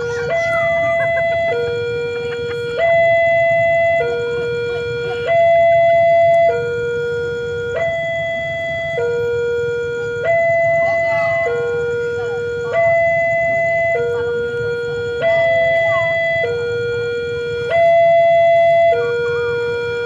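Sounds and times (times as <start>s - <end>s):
two-tone crossing warning alarm: 0.0s - 20.0s.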